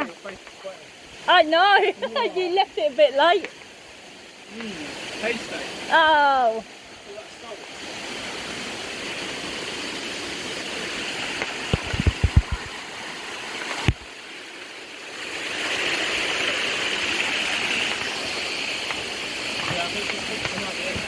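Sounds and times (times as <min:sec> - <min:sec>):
running water rushing: 0:00.0 - 0:21.0
low thumps: 0:11.7 - 0:12.8.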